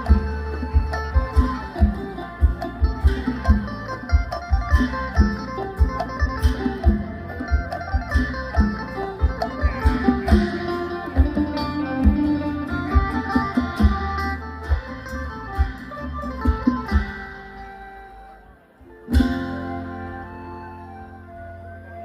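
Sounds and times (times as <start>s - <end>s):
steady drum beat: 0.0s - 17.4s
plucked lute melody: 0.0s - 22.0s.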